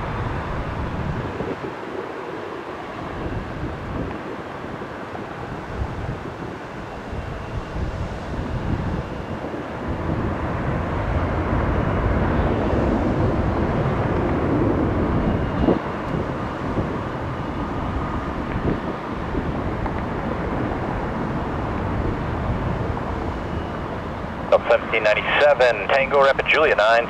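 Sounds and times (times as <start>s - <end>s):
jet airliner engines rushing: 0.0s - 27.0s.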